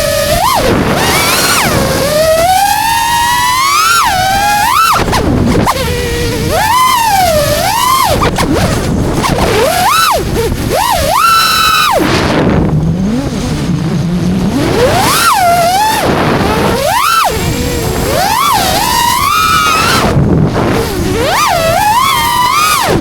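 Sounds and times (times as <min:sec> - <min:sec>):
quadcopter motors whining: 0:00.0 - 0:23.0
wind noise: 0:00.0 - 0:23.0.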